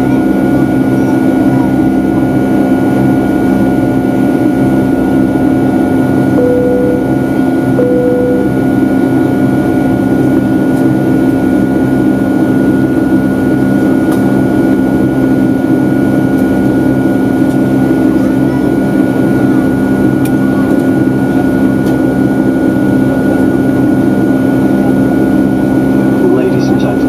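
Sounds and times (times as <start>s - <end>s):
airplane cabin noise: 0.0s - 27.0s
short beeps: 6.4s - 8.8s.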